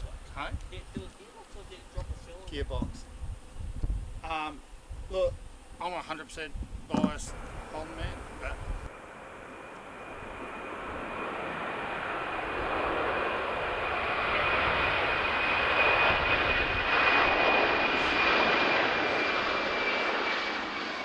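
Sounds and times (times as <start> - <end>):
steady high whine: 0.0 - 21.0
airliner engines rushing: 5.8 - 21.0.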